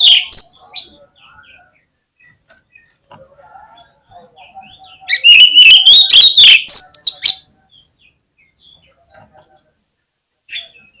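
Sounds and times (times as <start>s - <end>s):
faint bird chirps: 0.0s - 9.8s
bird whistled song: 4.9s - 7.5s.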